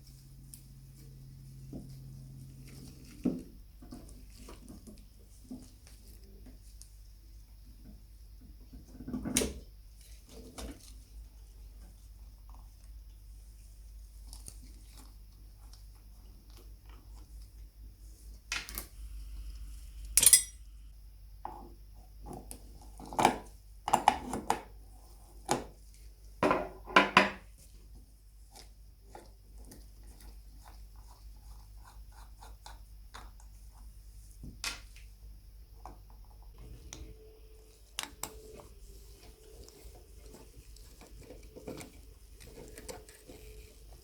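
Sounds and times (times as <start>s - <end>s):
metal lamp parts clinking: 20.2s - 20.6s.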